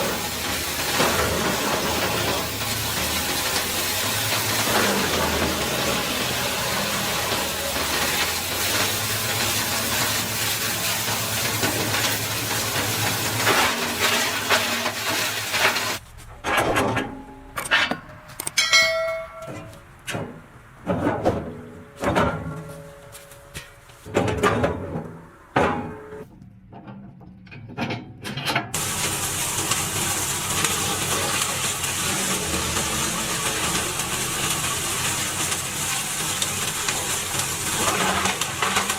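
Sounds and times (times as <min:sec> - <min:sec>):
machine hissing and humming: 0:00.0 - 0:16.0, 0:28.8 - 0:38.9.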